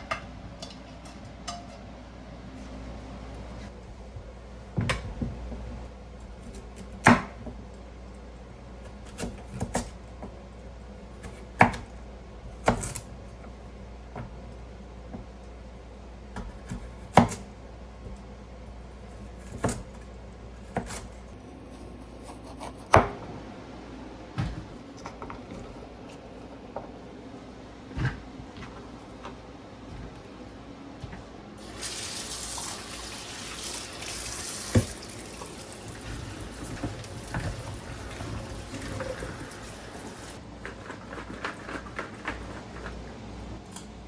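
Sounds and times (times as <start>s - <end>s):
knife chopping on cutting board: 12.6s - 13.1s, 16.4s - 17.4s, 19.3s - 20.0s, 20.6s - 23.2s.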